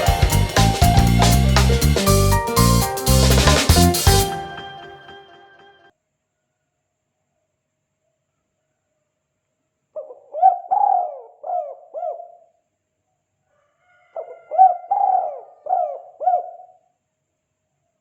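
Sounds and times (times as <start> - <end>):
dove cooing: 10.1 - 12.2, 14.6 - 16.6.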